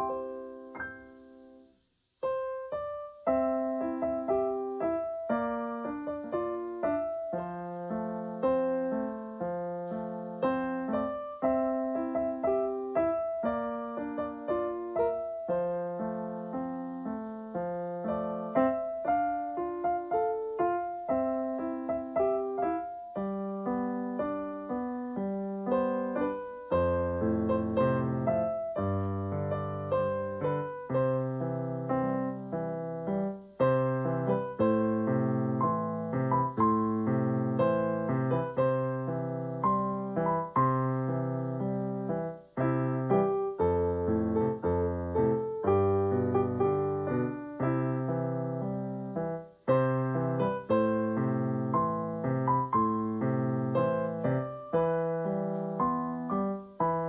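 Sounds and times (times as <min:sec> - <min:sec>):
piano bass notes: 0:00.0 - 0:57.0
solo piano melody: 0:00.0 - 0:57.0.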